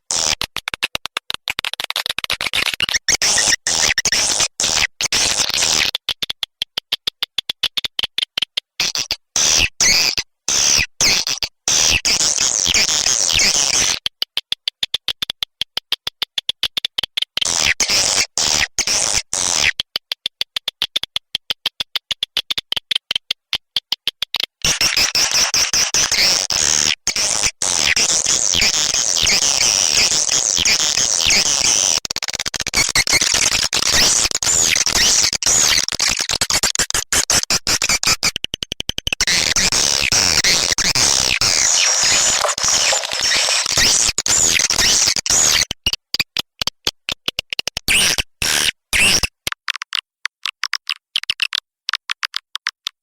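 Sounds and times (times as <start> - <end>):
swiftlets chirping and twittering: 41.4 - 44.0.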